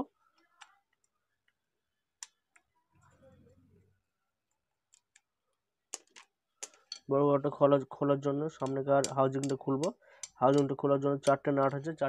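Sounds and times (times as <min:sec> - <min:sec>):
faint sharp clicks of small parts: 0:00.3 - 0:01.6, 0:04.5 - 0:05.3, 0:05.9 - 0:07.1, 0:08.6 - 0:11.8.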